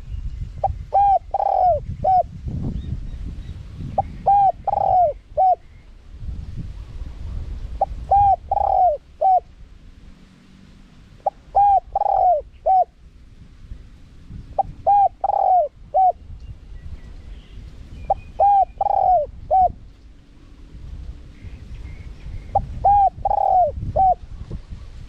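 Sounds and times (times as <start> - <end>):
dove cooing: 0.6 - 2.3, 4.0 - 5.7, 7.8 - 9.5, 11.2 - 13.0, 14.6 - 16.2, 18.1 - 19.8, 22.5 - 24.2.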